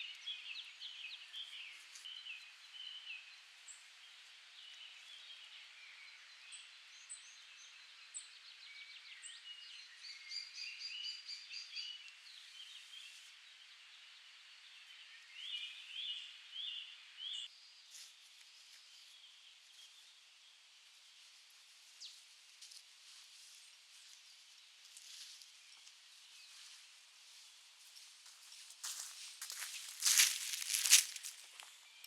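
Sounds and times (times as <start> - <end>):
songbirds singing: 0.0 - 22.3, 23.5 - 32.0
faint steady hiss: 11.4 - 32.0.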